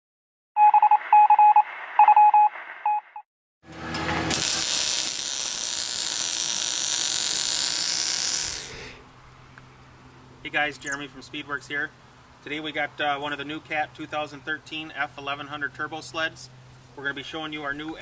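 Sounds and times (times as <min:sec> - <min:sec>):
electronic beeping tones: 0:00.6 - 0:03.2
loud steady hiss: 0:04.3 - 0:09.2.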